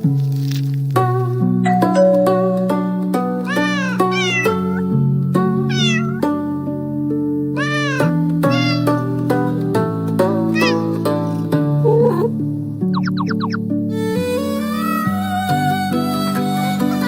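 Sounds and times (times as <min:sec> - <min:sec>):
background music of held notes: 0:00.0 - 0:17.0
kitten meowing: 0:03.5 - 0:05.0, 0:05.6 - 0:06.3, 0:07.6 - 0:09.0, 0:10.6 - 0:11.0, 0:13.0 - 0:13.6.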